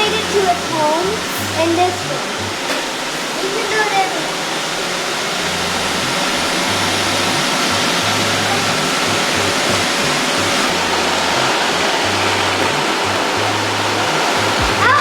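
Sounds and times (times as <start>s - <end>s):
robot vacuums running: 0.0s - 15.0s.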